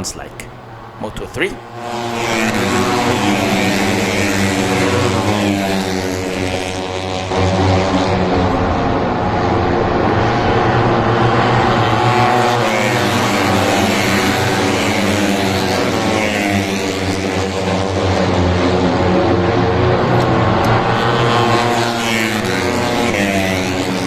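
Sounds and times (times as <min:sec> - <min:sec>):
race bike engines screaming: 0:01.0 - 0:24.0.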